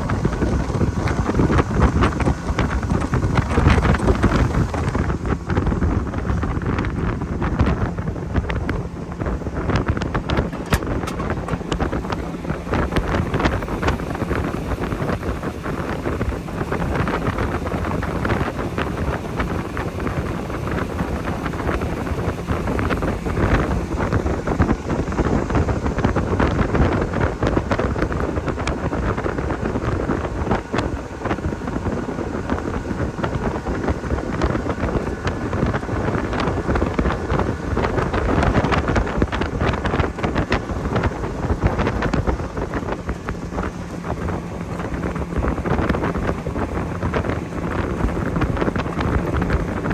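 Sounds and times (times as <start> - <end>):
motorboat motor running: 0.0 - 49.9
wind buffeting microphone: 0.0 - 49.9.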